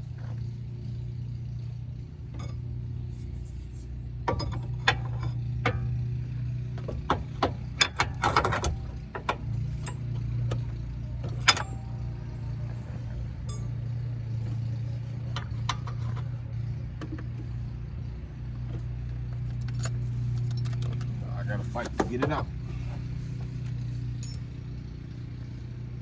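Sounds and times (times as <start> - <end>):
hand tools clinking on metal: 13.4 - 14.0, 24.2 - 24.5.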